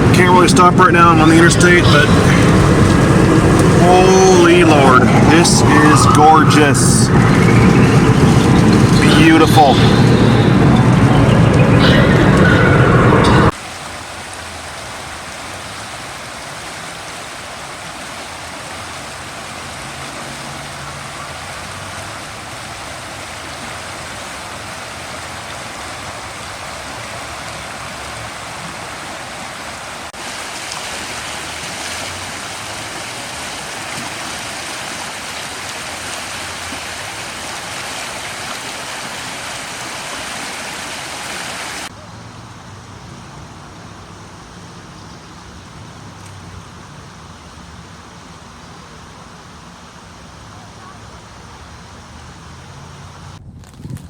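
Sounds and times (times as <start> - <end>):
car tyres hissing on wet road: 13.6 - 41.9.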